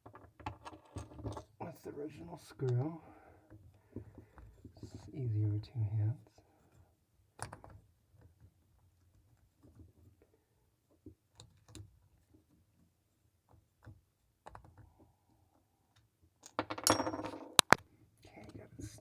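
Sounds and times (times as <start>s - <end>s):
small clicks and taps: 17.6s - 17.8s.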